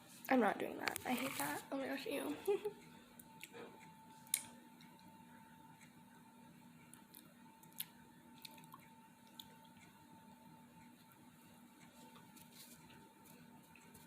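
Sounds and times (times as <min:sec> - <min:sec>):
faint steady hum: 0:00.0 - 0:14.0
chewing and mouth clicks: 0:06.9 - 0:09.9.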